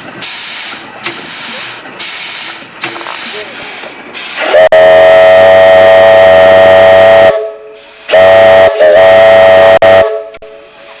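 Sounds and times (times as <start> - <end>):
steam whistle blasts: 4.4 - 10.8.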